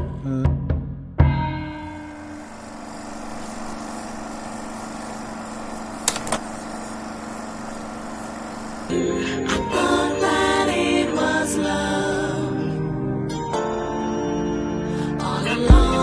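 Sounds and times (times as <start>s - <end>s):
music: 0.0s - 2.3s, 8.9s - 16.0s
motor-like hum: 1.8s - 13.3s
short clicks: 6.0s - 6.5s.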